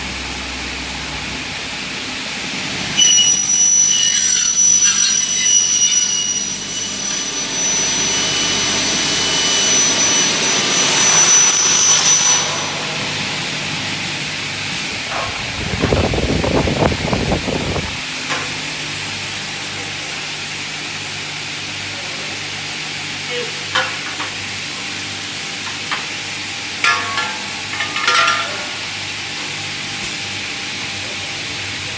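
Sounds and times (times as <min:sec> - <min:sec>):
cutting saw high-pitched whine: 0:02.8 - 0:14.1.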